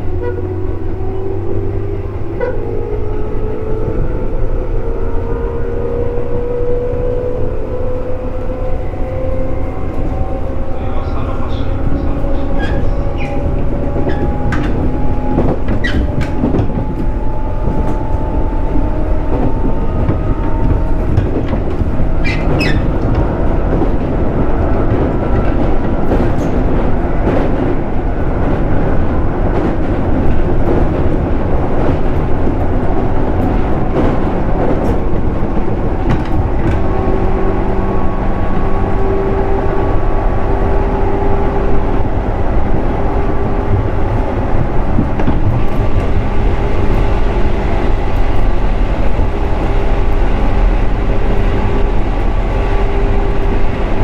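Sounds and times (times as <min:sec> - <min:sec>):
train motor and gear whine: 0:00.0 - 0:54.0
train wheels rumbling on rail: 0:00.0 - 0:54.0.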